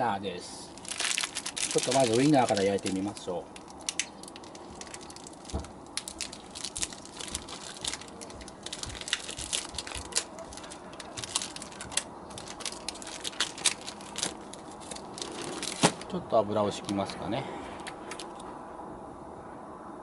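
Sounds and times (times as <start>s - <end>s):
low steady hiss: 0.0s - 20.0s
wood fire crackling and popping: 0.8s - 16.2s.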